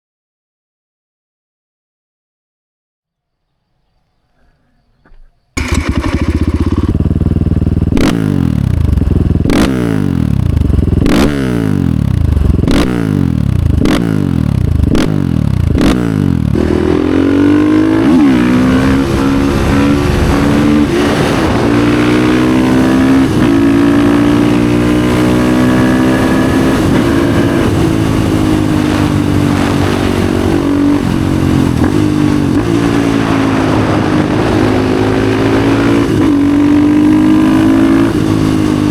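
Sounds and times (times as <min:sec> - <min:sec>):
sharp exhaust crack: 0:05.6 - 0:08.2
motorcycle engine revving: 0:05.6 - 0:38.9.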